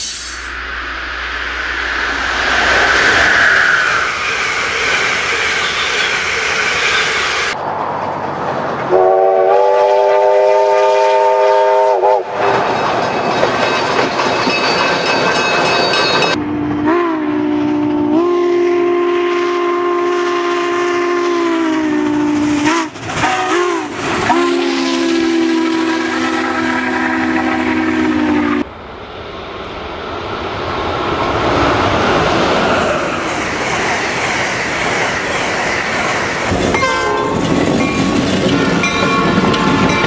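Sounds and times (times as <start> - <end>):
running train: 0.0 - 40.0
steam locomotive whistle: 8.9 - 12.4, 16.3 - 28.7, 36.7 - 37.4.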